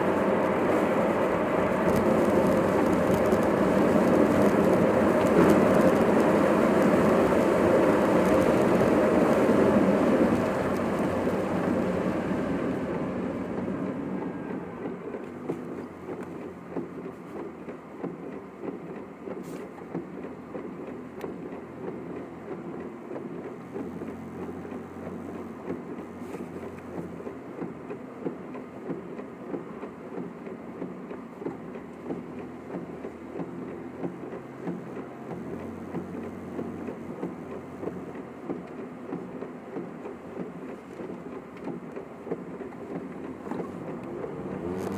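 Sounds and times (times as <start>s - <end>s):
car cabin road and engine noise: 0.0s - 44.9s
small bumps: 1.6s - 11.8s.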